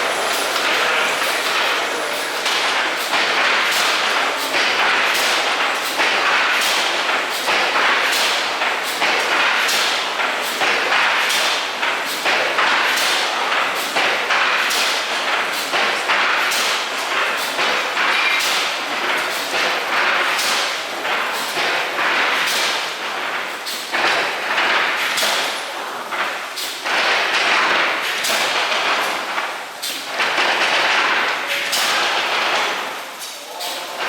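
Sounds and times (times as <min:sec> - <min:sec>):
power looms clattering: 0:00.0 - 0:34.0.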